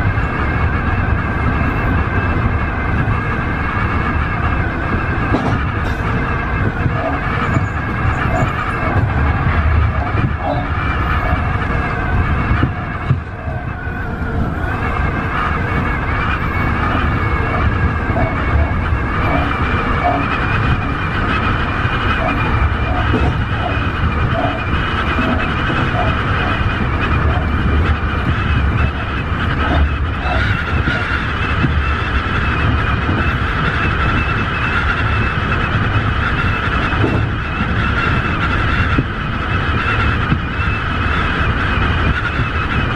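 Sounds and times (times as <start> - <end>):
electric train rumbling: 0.0 - 42.9
train whining tones: 0.0 - 42.9.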